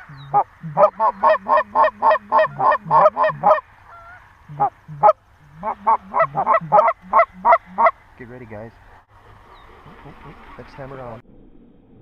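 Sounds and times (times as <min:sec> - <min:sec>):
goose call honks: 0:00.0 - 0:08.0
distant geese calling: 0:00.0 - 0:11.0.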